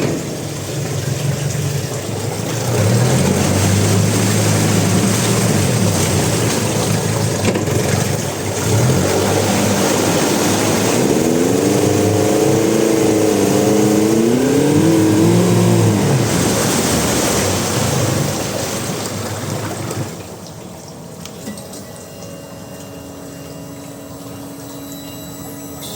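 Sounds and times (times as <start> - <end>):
outboard motor running: 0.0 - 20.4.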